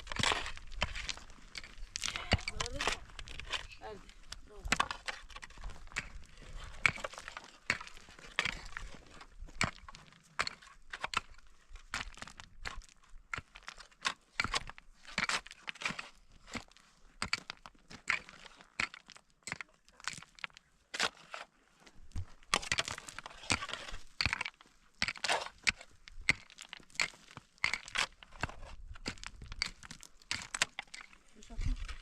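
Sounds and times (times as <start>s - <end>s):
crunching and crackling: 0.0s - 32.0s.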